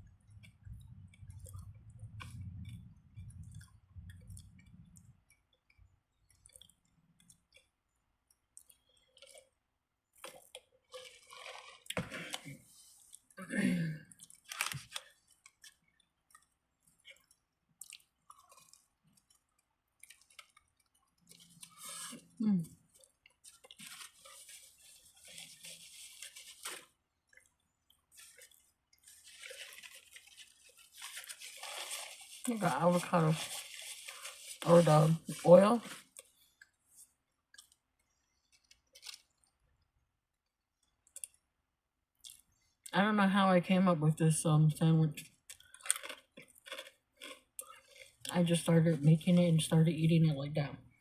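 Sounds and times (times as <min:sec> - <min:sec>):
mouth clicks and smacks chewing: 0:00.3 - 0:09.6, 0:14.1 - 0:21.8, 0:27.2 - 0:29.1, 0:37.5 - 0:39.6, 0:40.8 - 0:41.4, 0:42.2 - 0:42.5, 0:45.2 - 0:48.3
person chewing: 0:06.2 - 0:13.4, 0:14.1 - 0:32.5, 0:35.9 - 0:39.6, 0:45.3 - 0:48.3.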